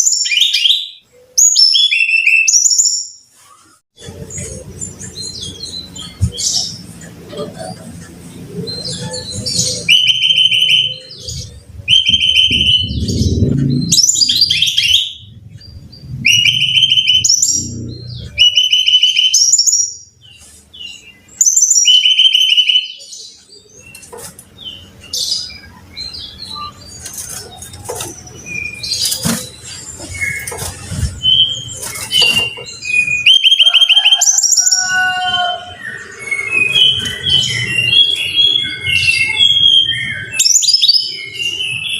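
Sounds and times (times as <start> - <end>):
low rumble: 12.5 - 16.7.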